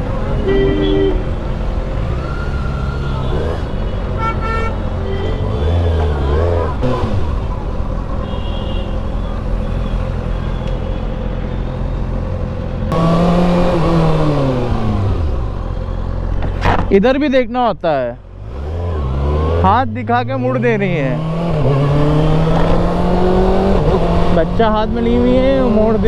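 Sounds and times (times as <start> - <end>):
motorcycle engine revving: 4.9 - 7.7, 12.9 - 15.8, 18.3 - 26.0.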